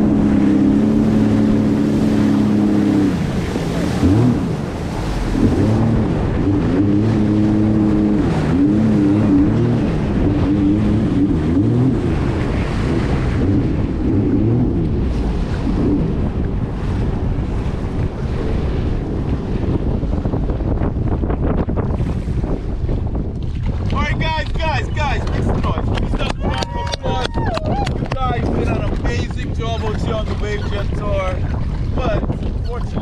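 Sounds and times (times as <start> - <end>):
jet ski engine running: 0.0 - 33.0
water rushing: 0.0 - 33.0
wind buffeting microphone: 0.0 - 33.0.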